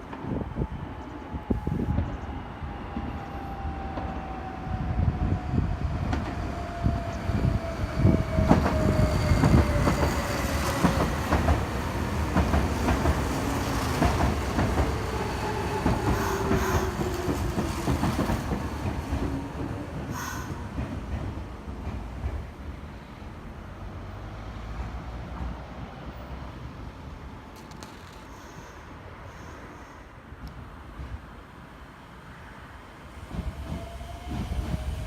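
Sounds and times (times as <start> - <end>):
train rumble: 0.0 - 35.0
train wheels clacking over rail joints: 8.4 - 22.6.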